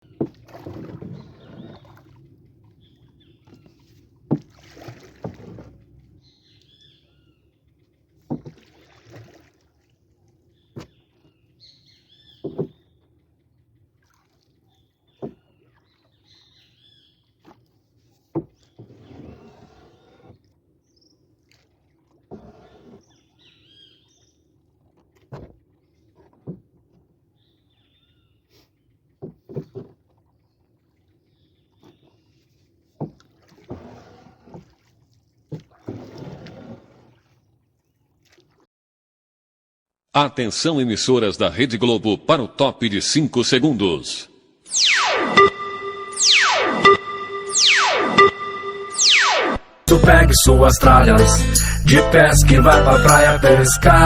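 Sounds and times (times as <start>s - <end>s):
water sloshing against boat: 0.0s - 38.7s
knocks on boat: 8.3s - 8.6s, 12.4s - 12.8s
short high chirps: 44.7s - 54.0s.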